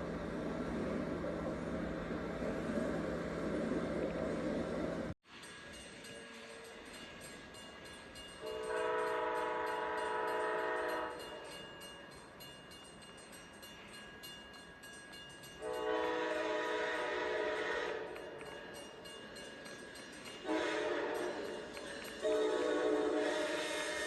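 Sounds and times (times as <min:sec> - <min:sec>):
passing train rumble: 0:00.0 - 0:24.0
train air horn blasts: 0:08.4 - 0:11.3, 0:15.6 - 0:18.6, 0:20.4 - 0:24.0.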